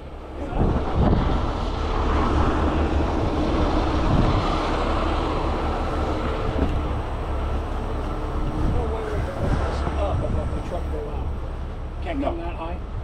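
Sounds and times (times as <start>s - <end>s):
truck engine low rumble: 0.0s - 13.0s.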